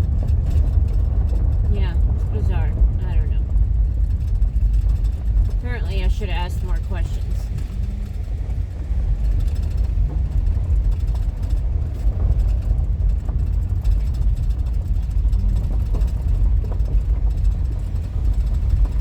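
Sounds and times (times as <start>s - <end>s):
engine and tyre rumble: 0.0s - 19.0s
faint knocks from rough road: 7.1s - 19.0s.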